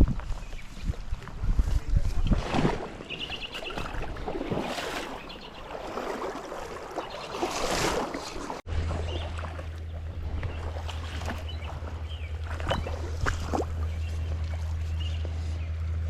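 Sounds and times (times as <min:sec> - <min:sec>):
stream water rushing: 0:02.8 - 0:14.5.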